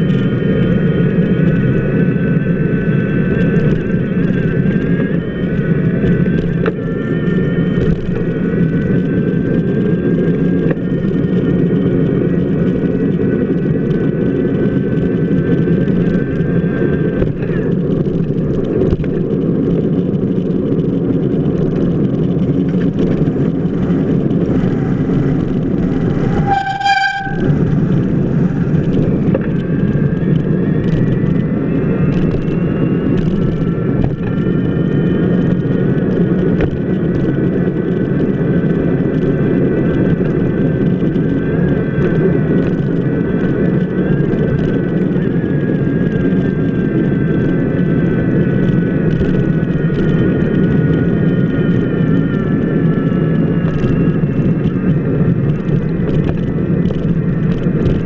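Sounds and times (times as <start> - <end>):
bicycle wheel rolling on wet pavement: 17.5 - 58.0
short horn-like toot: 24.9 - 28.6.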